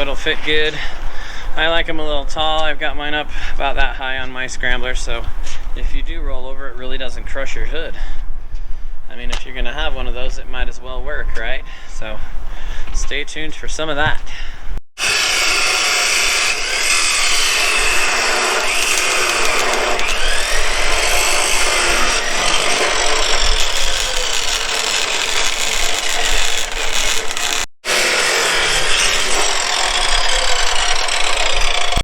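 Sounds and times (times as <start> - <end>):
power tool cutting steel: 15.0 - 32.0.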